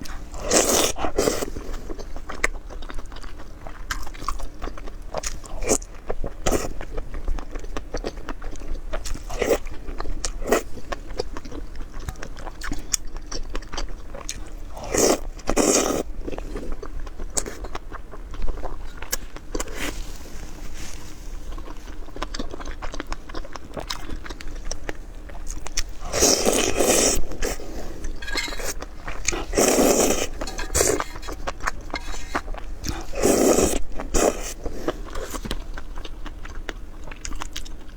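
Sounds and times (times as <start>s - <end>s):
person chewing crunchy food: 0.0s - 37.9s.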